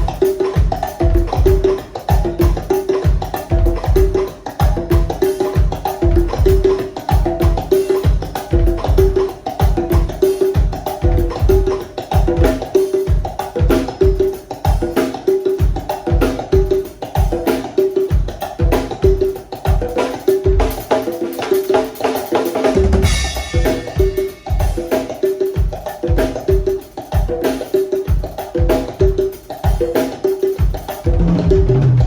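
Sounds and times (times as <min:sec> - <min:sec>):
low thudding beat: 0:00.0 - 0:12.5, 0:30.8 - 0:32.0
conga drums: 0:00.0 - 0:32.0.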